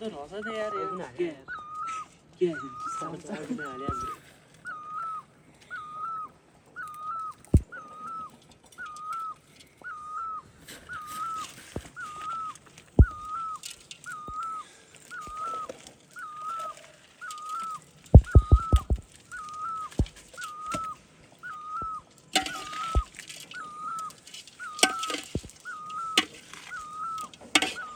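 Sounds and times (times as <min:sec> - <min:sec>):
bird whistling: 0:00.4 - 0:16.6, 0:17.3 - 0:27.9
sharp knocks: 0:18.2 - 0:19.0.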